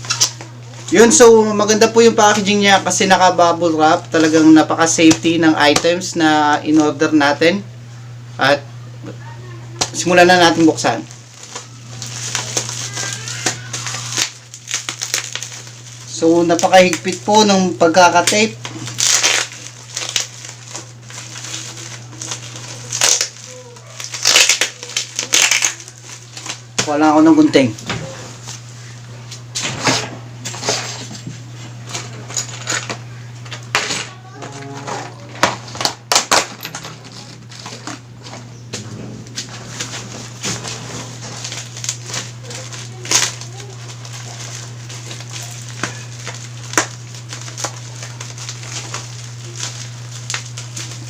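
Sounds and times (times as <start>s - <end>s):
steady low hum: 0.0s - 51.0s
plastic packaging crinkling: 9.9s - 29.1s, 30.5s - 51.0s.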